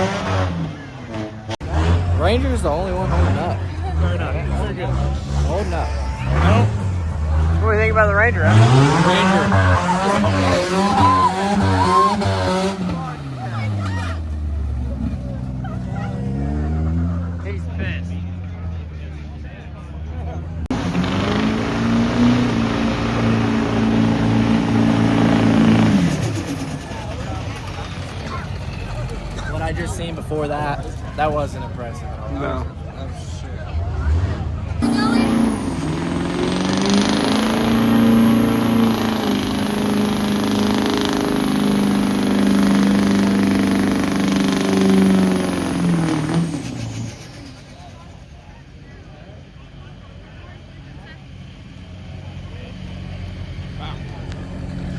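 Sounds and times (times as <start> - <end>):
truck engine at high revs: 0.0 - 54.9.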